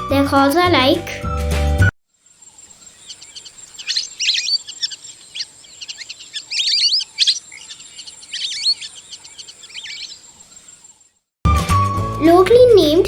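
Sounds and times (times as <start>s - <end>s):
ducks whistling calls: 2.4s - 11.0s.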